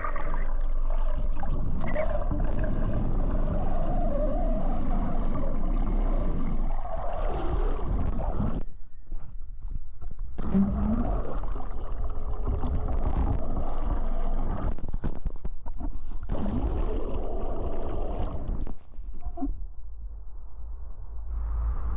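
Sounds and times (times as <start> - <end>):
low engine rumble: 19.7 - 21.9
rushing wind: 20.6 - 21.9.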